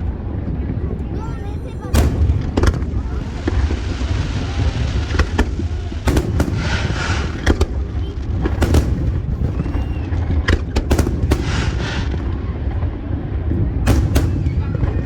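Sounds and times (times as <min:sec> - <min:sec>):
firework crackling sizzle: 0:01.2 - 0:15.0
firework shells bursting: 0:01.8 - 0:12.5, 0:13.9 - 0:15.0.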